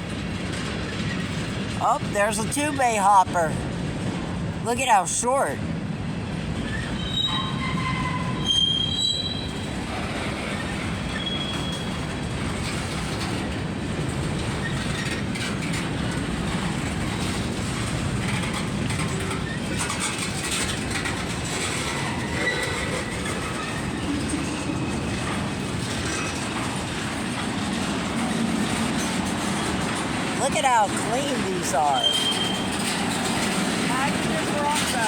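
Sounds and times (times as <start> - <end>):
wheels clicking over rail joints: 0.0 - 1.8, 6.5 - 35.0
train wheels rumbling on rail: 0.0 - 2.6, 3.6 - 4.6, 5.6 - 35.0
high wheel squeals: 6.6 - 9.7, 11.1 - 12.0, 32.0 - 33.0.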